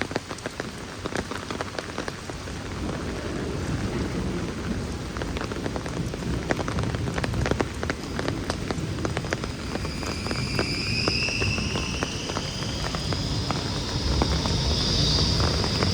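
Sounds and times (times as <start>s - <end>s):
heavy rain falling: 0.0s - 15.9s
faint high whine: 9.2s - 15.9s.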